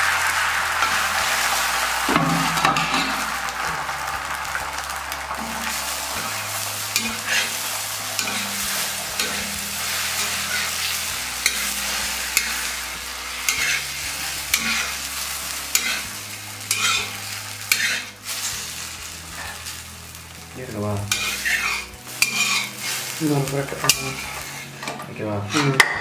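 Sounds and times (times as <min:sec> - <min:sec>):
egg sizzling on iron pan: 0:00.0 - 0:26.0
metal spatula scraping pan: 0:05.4 - 0:18.6, 0:19.3 - 0:19.8, 0:21.0 - 0:26.0.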